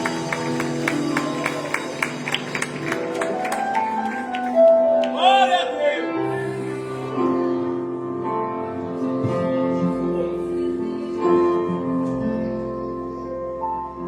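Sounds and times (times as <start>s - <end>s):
orchestra playing held chords: 0.0s - 4.1s.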